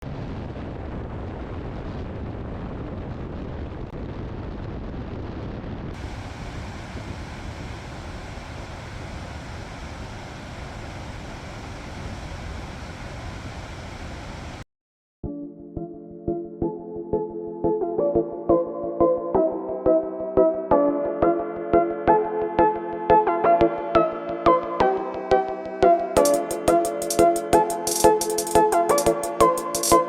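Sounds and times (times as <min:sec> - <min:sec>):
waterfall rushing: 0:06.0 - 0:14.6.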